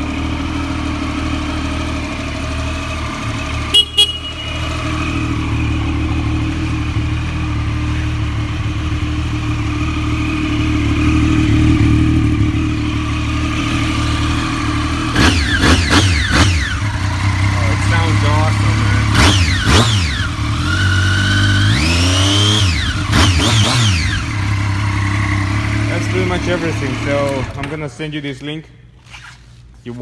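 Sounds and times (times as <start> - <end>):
motorcycle engine idling: 0.0 - 27.6
horn beeps: 3.7 - 5.2.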